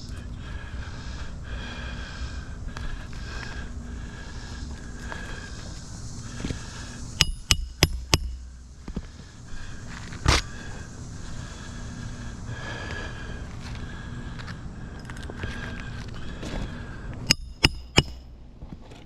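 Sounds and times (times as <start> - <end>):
outdoor background noise: 0.0 - 19.0
sharp taps: 7.2 - 8.5, 17.3 - 18.3.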